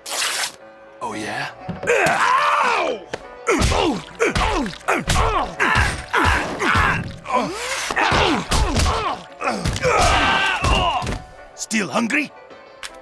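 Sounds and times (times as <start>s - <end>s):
pained grunts: 1.0s - 11.2s
cartoon punch and kick impacts: 3.5s - 7.2s, 8.0s - 11.3s.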